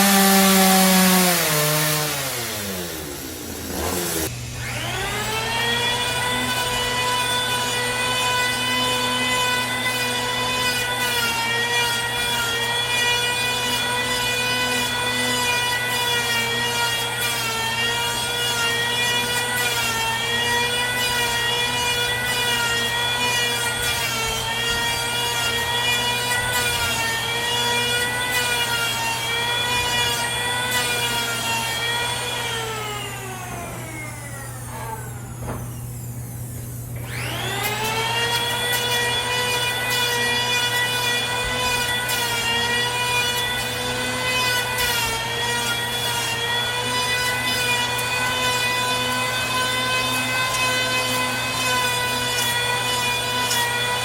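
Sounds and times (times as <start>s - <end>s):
power saw cutting wood: 0.0s - 54.0s.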